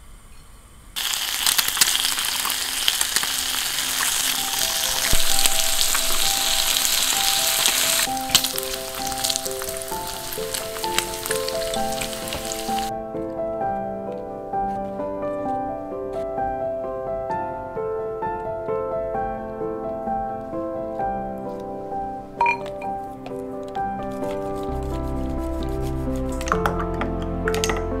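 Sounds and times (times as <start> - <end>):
egg and bacon sizzling in oil: 1.0 - 12.9
soft piano music: 1.4 - 28.0.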